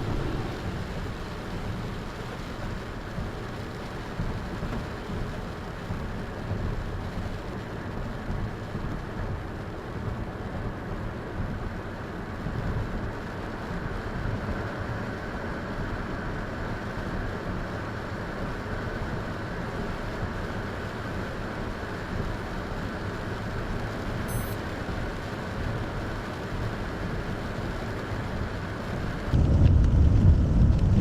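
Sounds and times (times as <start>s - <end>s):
vehicle driving through storm: 0.0s - 31.0s
wind and rain on car: 0.0s - 31.0s.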